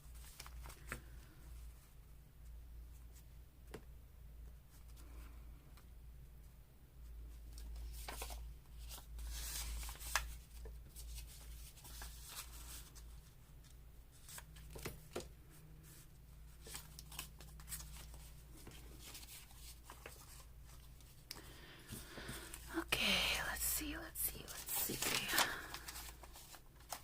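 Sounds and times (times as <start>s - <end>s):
low steady hum: 0.0s - 27.0s
paper rustling: 7.5s - 13.4s, 15.8s - 22.7s, 24.4s - 27.0s.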